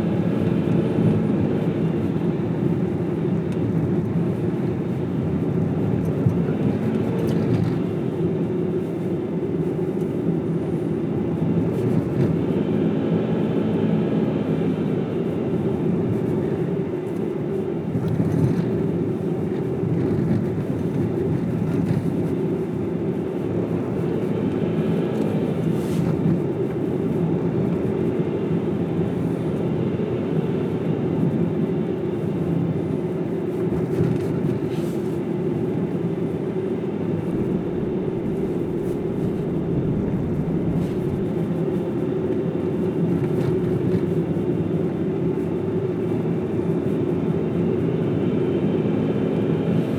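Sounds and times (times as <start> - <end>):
car driving hum: 32.1 - 48.4.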